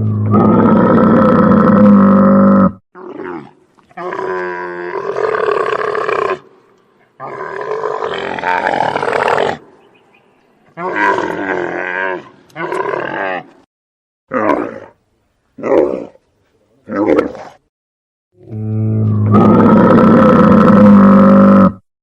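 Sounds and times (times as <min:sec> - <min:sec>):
camel bellowing: 0:18.4 - 0:21.8.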